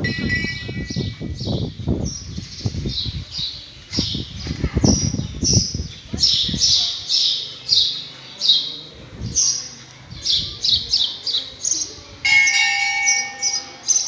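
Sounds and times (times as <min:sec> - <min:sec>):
bell ringing: 0:00.0 - 0:01.2, 0:12.2 - 0:13.9.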